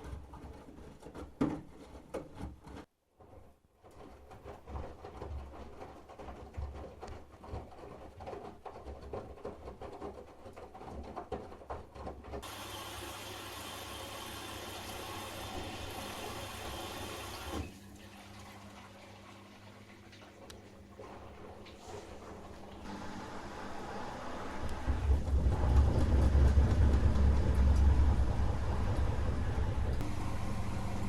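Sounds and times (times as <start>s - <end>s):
washing machine hum: 4.2s - 31.0s
water running into machine: 12.4s - 27.0s
washing machine drum tumbling: 23.8s - 31.0s.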